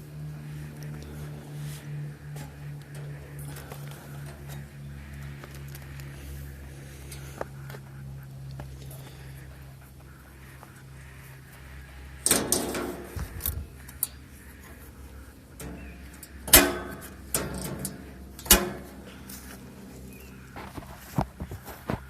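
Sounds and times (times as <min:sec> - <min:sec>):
low steady hum: 0:00.0 - 0:22.0
sharp knocks and clatters: 0:12.2 - 0:13.6.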